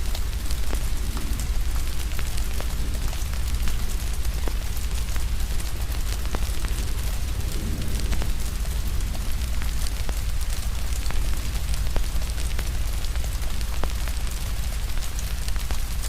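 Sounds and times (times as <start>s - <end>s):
steady rain: 0.0s - 16.0s
wood fire crackling: 0.0s - 16.0s
deep low rumble: 0.1s - 14.5s.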